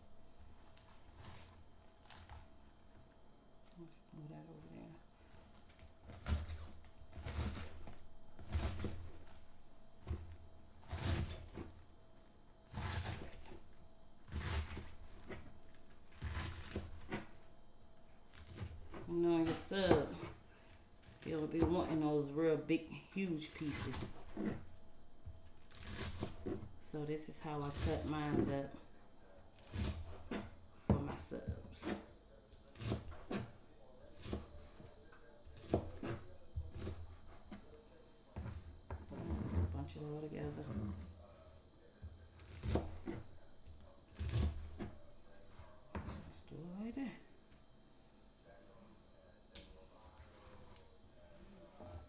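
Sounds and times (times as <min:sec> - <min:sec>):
knife cutting on cutting board: 0:06.0 - 0:11.8, 0:12.7 - 0:13.7, 0:14.3 - 0:17.4, 0:23.6 - 0:24.7, 0:25.6 - 0:26.7, 0:29.6 - 0:31.1, 0:32.7 - 0:37.6, 0:42.4 - 0:43.4, 0:44.1 - 0:45.1.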